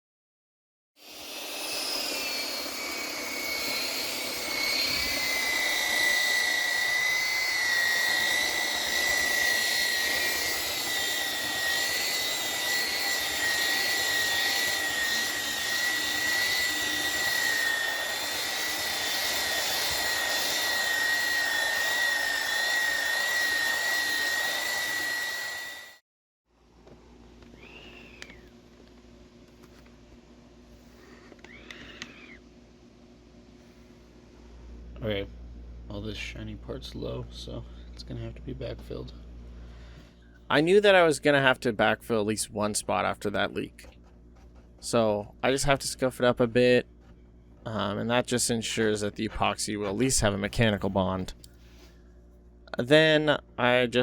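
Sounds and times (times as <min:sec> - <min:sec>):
power tool motor whine: 0:01.0 - 0:26.0, 0:27.4 - 0:28.5, 0:31.1 - 0:32.4.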